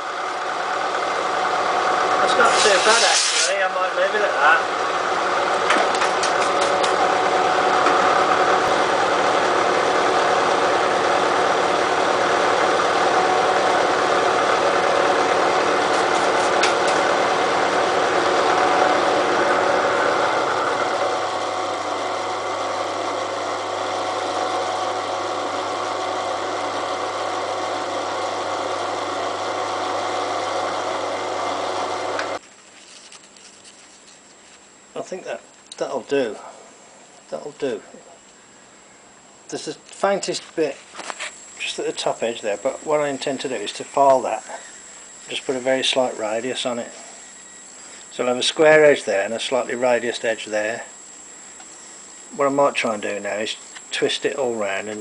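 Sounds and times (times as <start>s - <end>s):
milling machine cutting steel: 2.1s - 3.6s, 5.9s - 22.3s.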